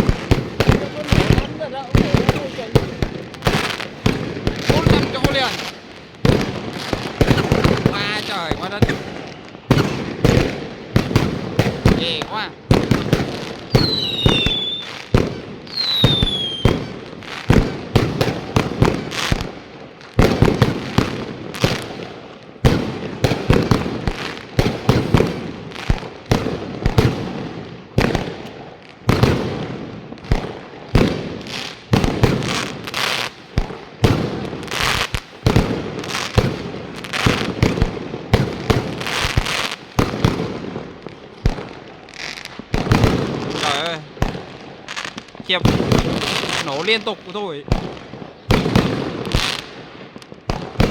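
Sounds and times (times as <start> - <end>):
fireworks bangs and booms: 0.0 - 50.9
falling firework whistle: 13.7 - 15.0, 15.7 - 17.0.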